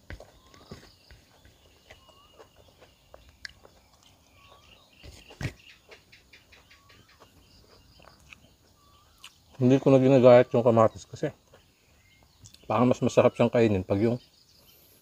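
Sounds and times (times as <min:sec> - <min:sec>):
bird whistling: 0:00.2 - 0:11.1
wet chewing mouth clicks: 0:03.2 - 0:04.2, 0:08.0 - 0:08.5, 0:09.2 - 0:09.4.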